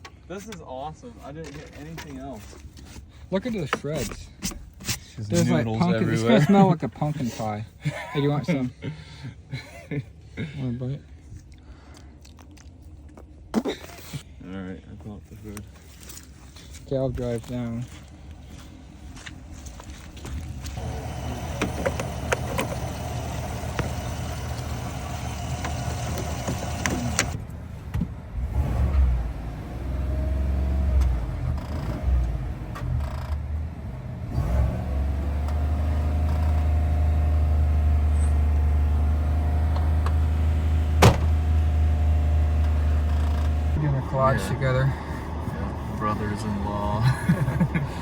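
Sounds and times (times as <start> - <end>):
vehicle engine running: 17.8 - 48.0.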